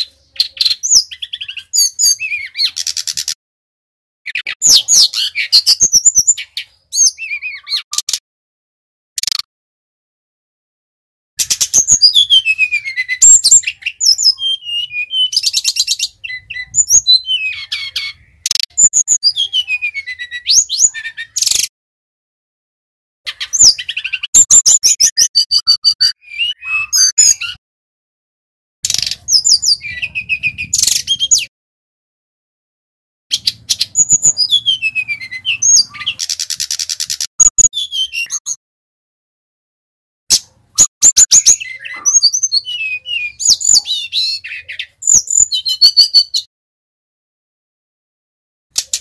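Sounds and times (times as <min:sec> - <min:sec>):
flycatcher singing whistles and trills: 0:00.0 - 0:03.4, 0:04.3 - 0:08.2, 0:11.4 - 0:21.7, 0:23.3 - 0:27.6, 0:28.8 - 0:31.5, 0:33.3 - 0:38.6, 0:40.3 - 0:46.5.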